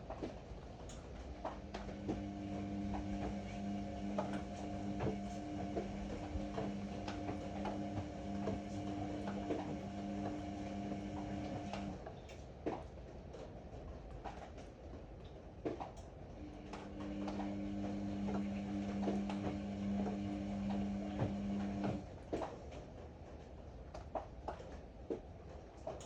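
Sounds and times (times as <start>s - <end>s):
washer-dryer humming: 0.0s - 12.1s, 15.7s - 22.5s.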